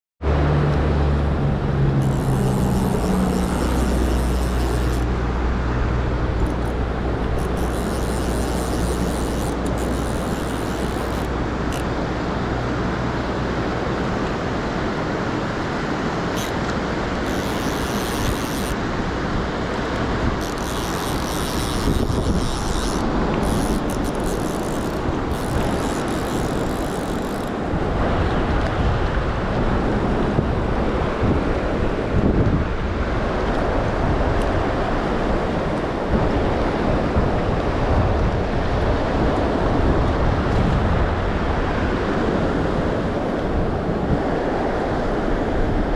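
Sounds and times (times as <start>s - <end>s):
vehicle engine drone: 0.2s - 31.0s
rushing river water: 0.3s - 45.9s.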